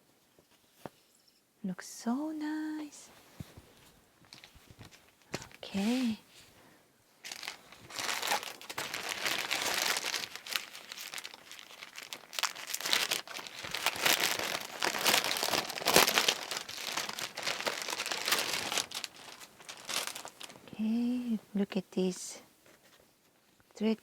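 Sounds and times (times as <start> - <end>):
packaging crinkling and rustling: 4.2 - 6.2, 7.2 - 20.7.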